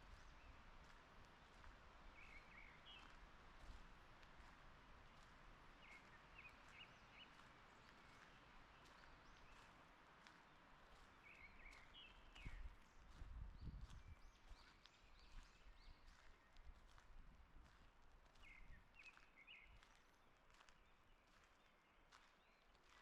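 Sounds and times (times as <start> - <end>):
faint forest ambience: 0.0 - 13.1.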